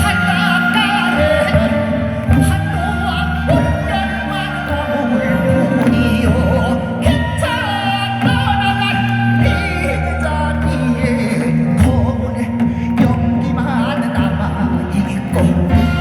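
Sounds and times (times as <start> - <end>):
instrumental accompaniment: 0.0 - 16.0
person singing: 0.0 - 16.0.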